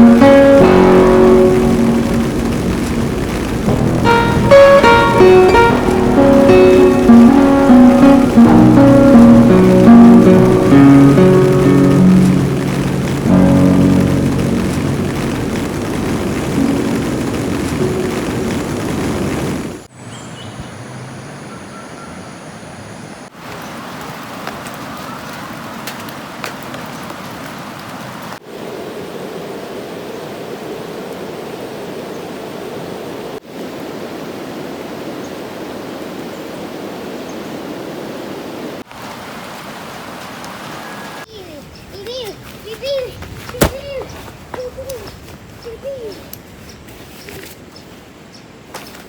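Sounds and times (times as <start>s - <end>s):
flowing river water: 0.0s - 18.9s, 23.3s - 41.3s
background music: 0.0s - 19.0s
rain: 0.0s - 20.0s, 23.0s - 49.0s.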